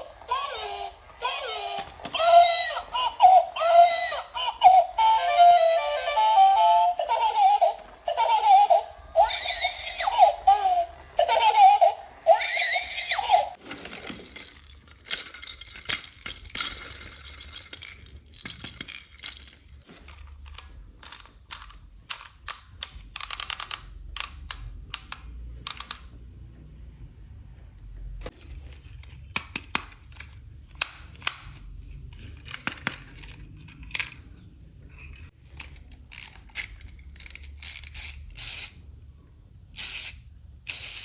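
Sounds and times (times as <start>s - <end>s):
giggly toy voice sounds: 0.0s - 13.6s.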